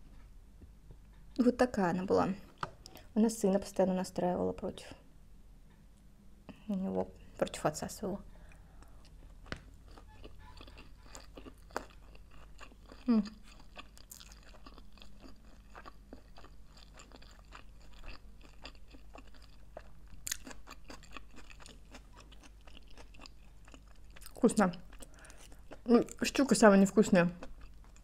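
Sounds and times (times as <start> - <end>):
chewing sushi: 8.4 - 26.3, 27.4 - 28.0.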